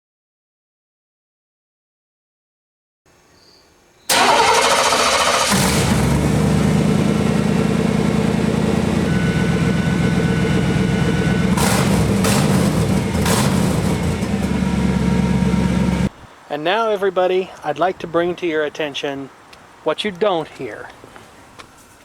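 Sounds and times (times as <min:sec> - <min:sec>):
car starter cranking: 0:04.1 - 0:08.8, 0:11.4 - 0:16.1
car engine idling: 0:04.1 - 0:16.1.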